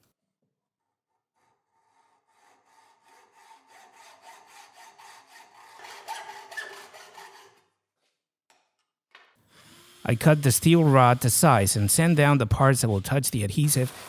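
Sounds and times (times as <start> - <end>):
hacksaw cutting steel rod: 1.4 - 7.7, 9.6 - 14.0.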